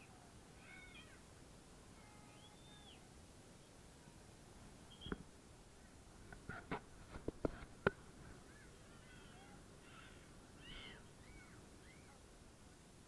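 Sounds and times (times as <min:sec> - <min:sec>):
faint bird chirps: 0:02.2 - 0:03.8, 0:04.9 - 0:05.2, 0:08.4 - 0:12.2.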